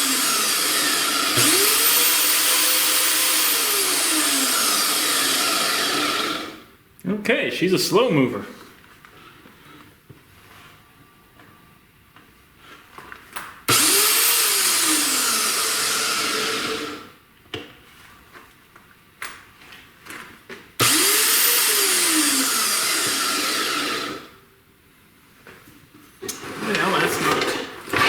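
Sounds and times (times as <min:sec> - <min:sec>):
chop saw motor whining: 0:00.0 - 0:06.6, 0:13.7 - 0:17.1, 0:20.8 - 0:24.4.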